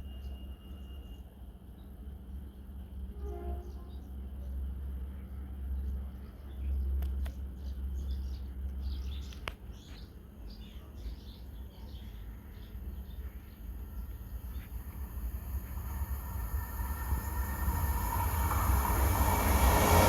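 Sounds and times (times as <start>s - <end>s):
small birds chirping: 5.8s - 15.3s
low rumble: 12.8s - 20.0s.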